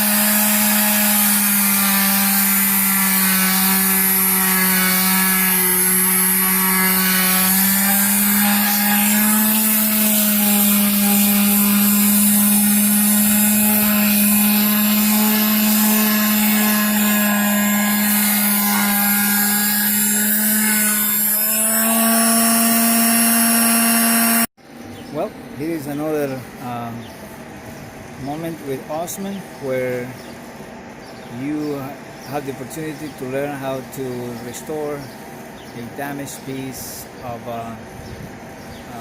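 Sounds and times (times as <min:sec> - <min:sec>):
electric sander sanding wood: 0:00.0 - 0:24.5.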